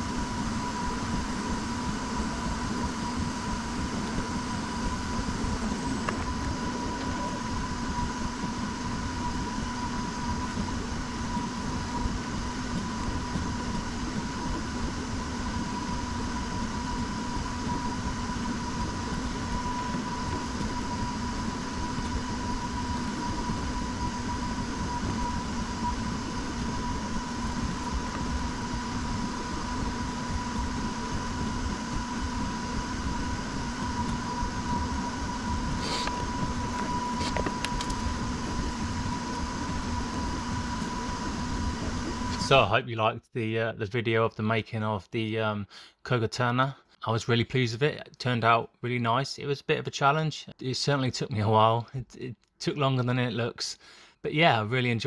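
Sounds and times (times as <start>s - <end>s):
machine humming with high whine: 0.0s - 43.2s.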